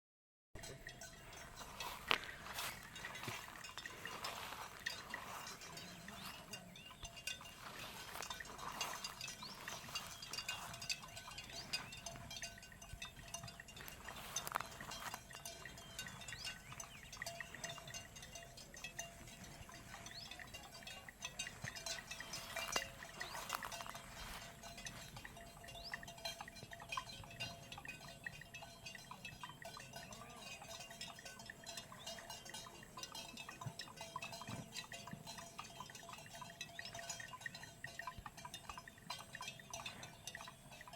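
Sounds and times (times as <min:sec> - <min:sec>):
farm animals milling about: 0:00.6 - 0:40.9
small clinks and clicks: 0:00.6 - 0:40.9.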